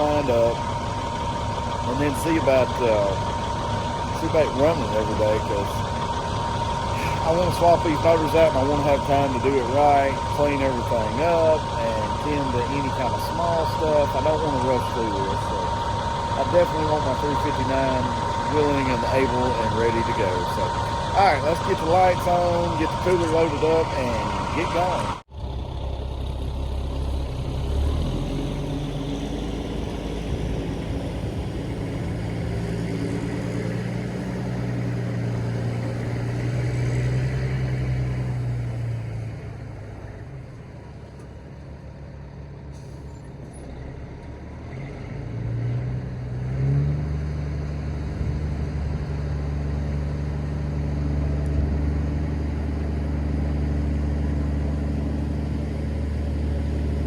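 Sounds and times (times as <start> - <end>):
diesel truck engine running: 0.0 - 57.0.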